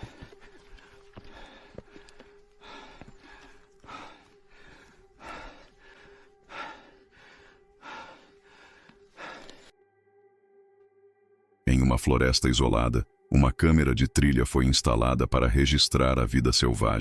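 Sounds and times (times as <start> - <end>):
person breathing hard: 0.0 - 9.7.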